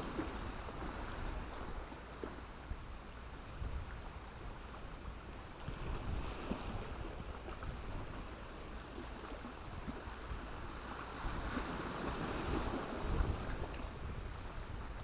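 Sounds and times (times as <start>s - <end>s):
waves washing onto stony beach: 5.5s - 15.0s.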